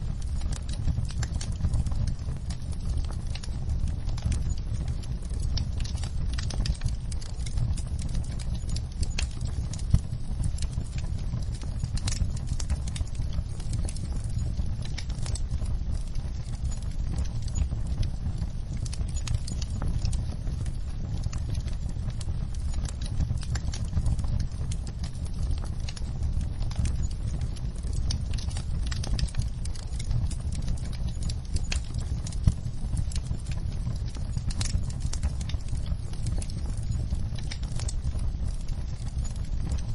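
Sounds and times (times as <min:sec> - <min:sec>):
crackles and pops from logs: 0:00.0 - 0:39.9
low rumble of flames: 0:00.0 - 0:39.9.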